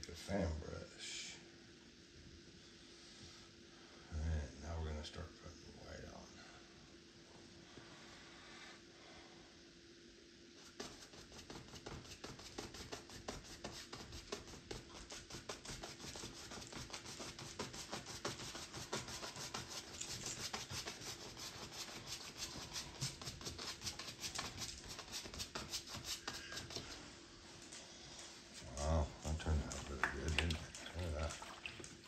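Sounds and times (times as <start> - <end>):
brush scrubbing canvas: 10.5 - 27.2, 28.4 - 32.0.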